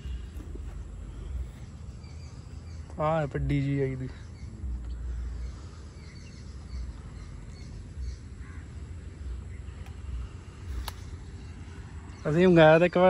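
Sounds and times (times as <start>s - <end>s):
faint short bird calls: 4.1s - 12.2s.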